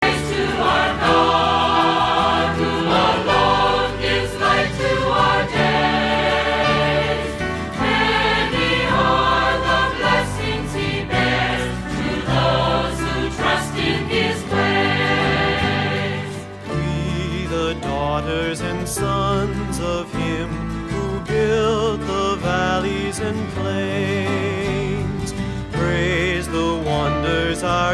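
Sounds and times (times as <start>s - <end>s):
choir singing sustained notes: 0.0s - 16.6s
instrumental accompaniment: 0.0s - 23.6s.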